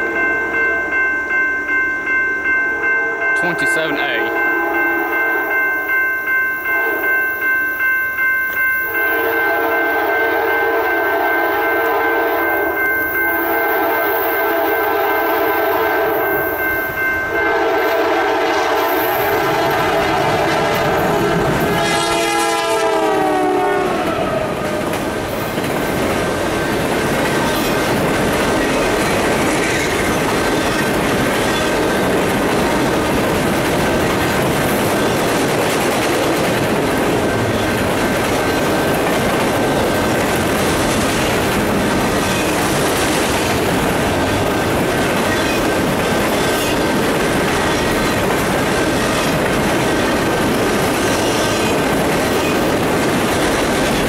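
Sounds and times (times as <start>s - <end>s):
train horn: 4.1s - 5.5s, 6.7s - 7.2s, 9.0s - 16.6s, 17.2s - 24.9s
freight train wheels clattering: 24.6s - 54.0s.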